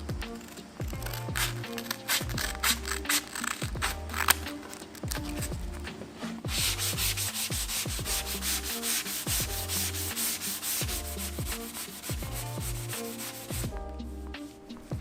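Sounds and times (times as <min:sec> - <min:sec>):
sanding a wooden board: 0:06.2 - 0:14.8.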